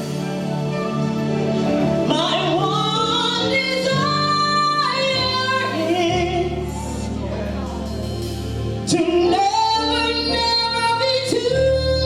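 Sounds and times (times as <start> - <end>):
woman singing: 2.0 - 7.3, 8.8 - 12.0.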